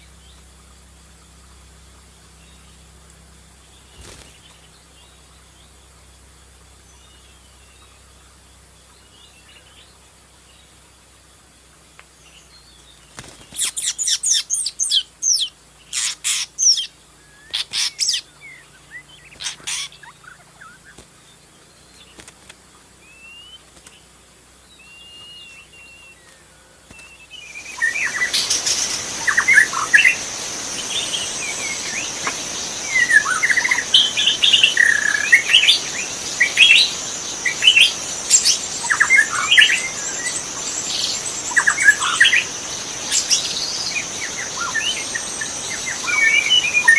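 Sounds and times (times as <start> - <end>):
background hiss: 0.0 - 46.9
songbirds whistling: 3.6 - 5.9, 12.2 - 46.9
chorus of short chirps: 13.2 - 22.3, 24.8 - 46.9
high-pitched hum: 25.8 - 46.9.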